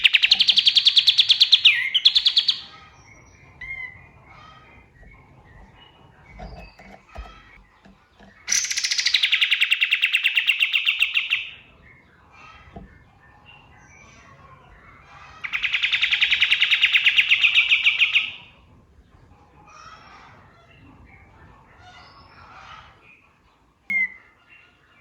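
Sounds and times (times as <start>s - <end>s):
bird calling in fast trills: 0.0s - 5.0s, 8.4s - 11.6s
faint bird chirps: 23.9s - 24.8s.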